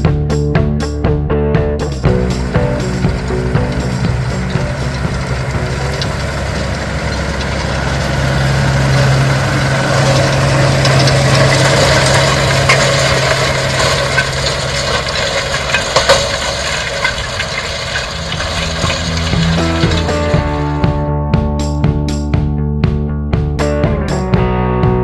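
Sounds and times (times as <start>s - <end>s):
tractor diesel engine running: 1.8s - 21.1s
machinery knocking and clattering: 1.9s - 21.0s.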